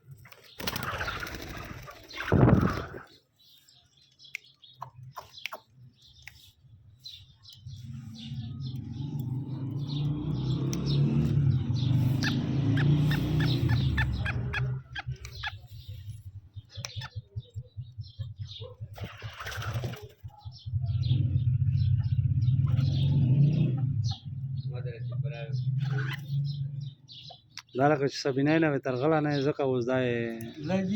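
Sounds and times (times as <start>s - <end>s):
low rumble: 7.5s - 27.1s
francolin calling: 11.7s - 18.8s.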